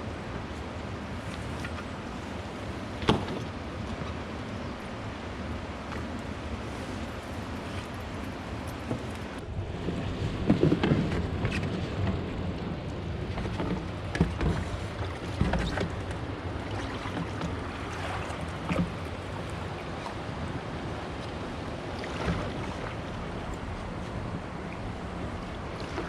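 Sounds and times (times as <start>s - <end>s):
wind on microphone: 6.2s - 16.0s.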